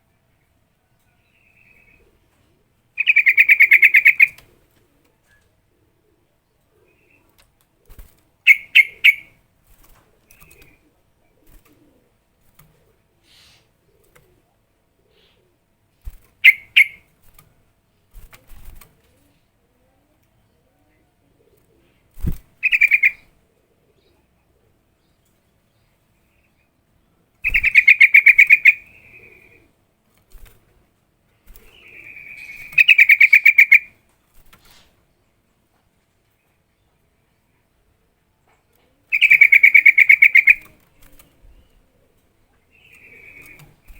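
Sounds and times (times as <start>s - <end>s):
bulbul singing: 3.0s - 4.4s, 8.4s - 9.4s, 16.4s - 17.0s, 22.6s - 23.3s, 27.4s - 29.6s, 31.6s - 33.9s, 39.1s - 41.8s, 42.7s - 43.9s
bird sharp notes: 8.5s - 9.3s, 16.4s - 17.0s, 27.4s - 29.5s.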